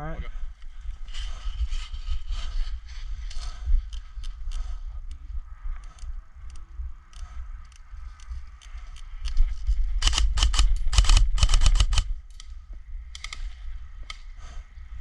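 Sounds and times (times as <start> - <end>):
airsoft guns firing clicks: 10.0 - 12.5, 13.1 - 14.3.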